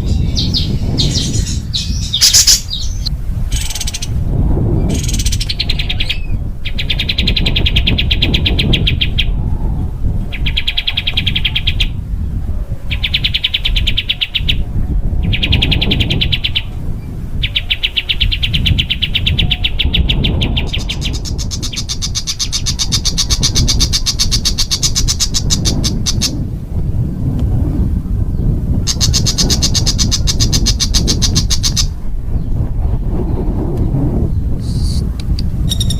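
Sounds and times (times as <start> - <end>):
songbird rattling trills: 0.0 - 4.2, 17.4 - 26.4, 28.9 - 32.0, 35.6 - 35.9.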